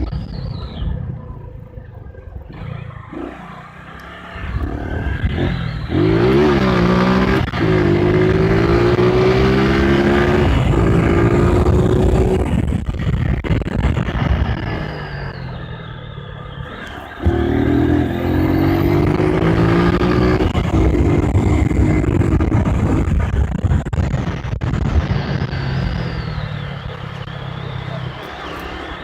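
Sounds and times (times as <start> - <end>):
motorcycle engine revving: 0.0 - 29.0
wind rushing over microphone: 4.4 - 15.4, 17.2 - 26.3.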